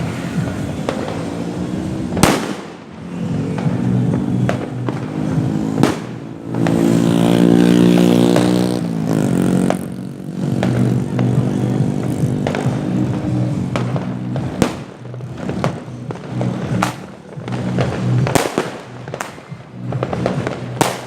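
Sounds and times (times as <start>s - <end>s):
firework bangs and pops: 0.0s - 21.0s
vehicle engine running: 3.2s - 21.0s.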